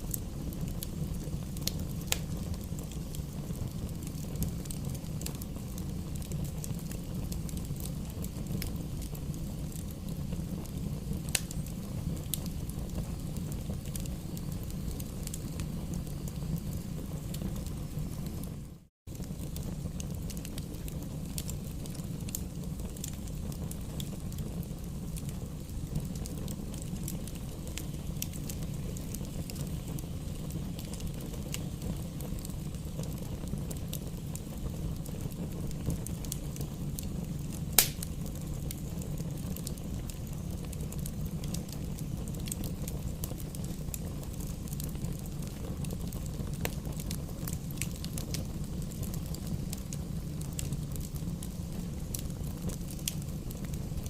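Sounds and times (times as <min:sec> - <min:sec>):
fire rumbling and crackling: 0:00.0 - 0:54.0
sharp loud pop: 0:37.8 - 0:38.1.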